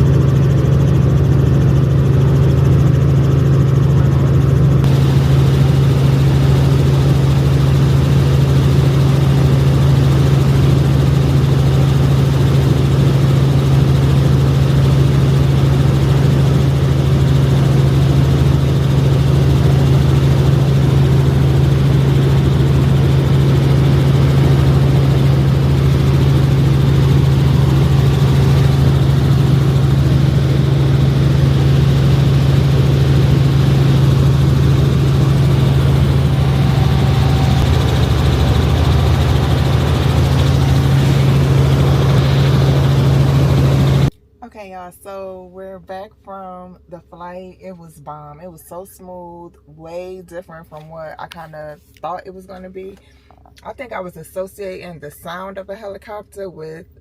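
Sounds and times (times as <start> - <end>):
helicopter engine and rotor drone: 0.0 - 44.2.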